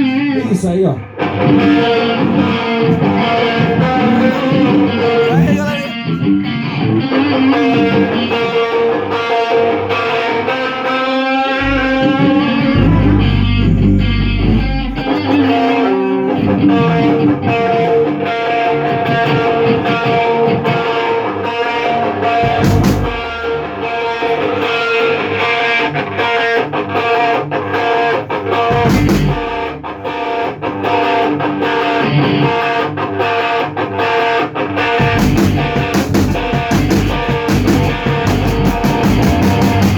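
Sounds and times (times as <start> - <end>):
distorted electric guitar: 0.0 - 39.9
sharp percussive hits: 11.6 - 15.2, 35.0 - 39.9.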